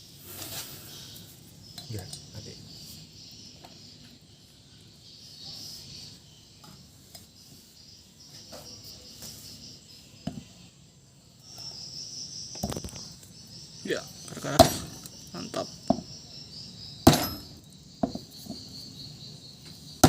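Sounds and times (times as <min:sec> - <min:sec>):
faint insect chirping: 0:00.0 - 0:20.0.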